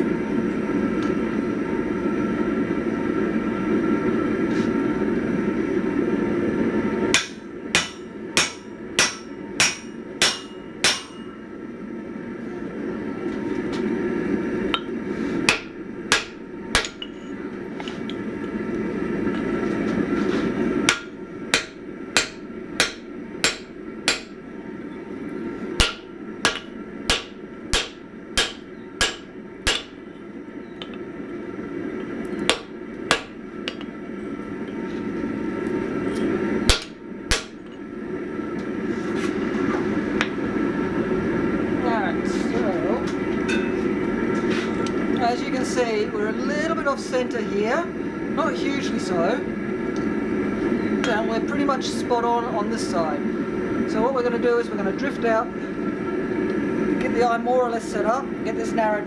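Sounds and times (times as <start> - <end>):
hammer striking metal on anvil: 7.1 - 11.4, 15.5 - 17.2, 20.9 - 24.5, 25.8 - 30.0, 32.4 - 33.9, 36.7 - 37.7.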